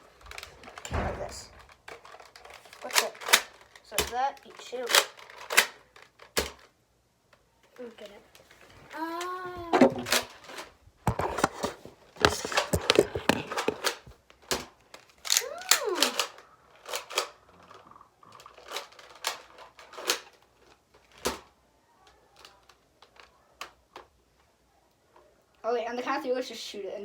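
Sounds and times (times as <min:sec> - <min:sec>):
plastic toy blaster clicks: 0:01.9 - 0:06.7, 0:12.2 - 0:17.4, 0:18.5 - 0:20.4.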